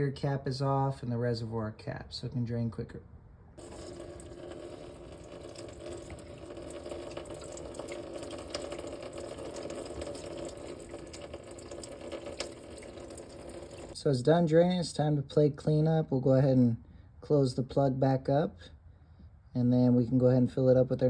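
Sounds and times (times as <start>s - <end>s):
coolant draining into a pan: 3.6s - 14.0s.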